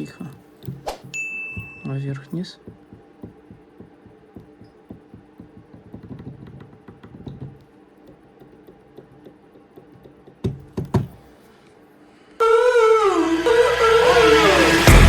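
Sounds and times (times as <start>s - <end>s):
steering joint clicking and knocking: 2.6s - 11.2s
music: 13.5s - 15.0s.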